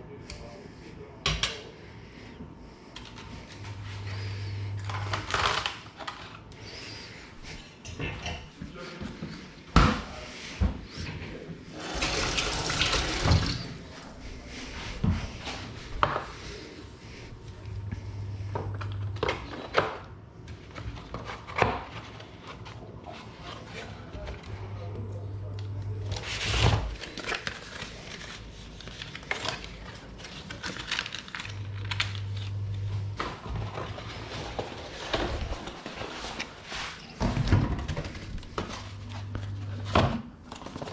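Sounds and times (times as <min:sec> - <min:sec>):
steady low hum: 0:00.0 - 0:40.9
water running from tap: 0:11.8 - 0:13.8.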